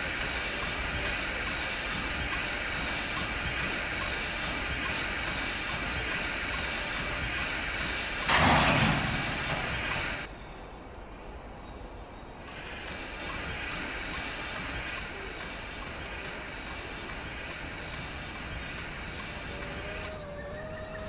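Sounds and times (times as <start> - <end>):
steam train running: 0.0 - 10.3, 12.3 - 21.0
loud rushing burst: 8.2 - 10.3
insect chirping: 10.3 - 20.8.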